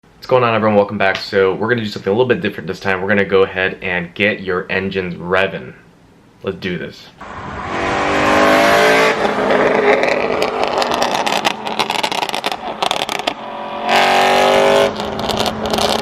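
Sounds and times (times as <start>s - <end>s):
car engine revving hard: 7.2s - 16.0s
exhaust popping and crackling: 7.2s - 16.0s.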